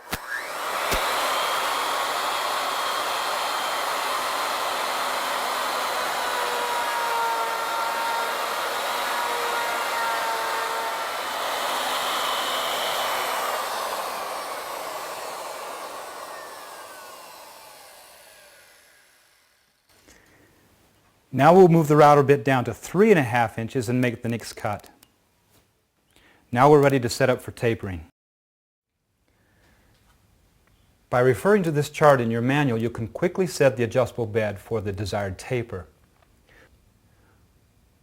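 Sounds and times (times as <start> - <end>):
router bit cutting wood: 0.0 - 19.9
router whining: 0.0 - 19.9.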